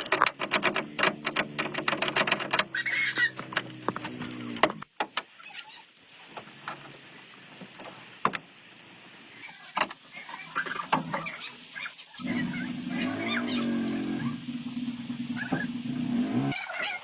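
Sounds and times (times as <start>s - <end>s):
metallic clicks and knocks: 0.0s - 2.7s.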